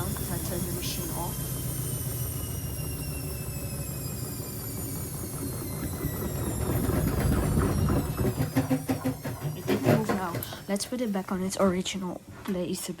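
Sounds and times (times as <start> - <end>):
washing machine motor whine: 0.0 - 13.0
washing machine drum knocking: 6.0 - 10.6.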